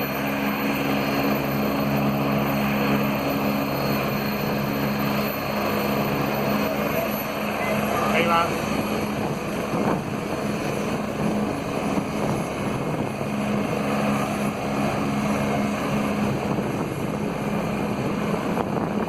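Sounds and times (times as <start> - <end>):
helicopter lifting off: 0.0 - 19.0.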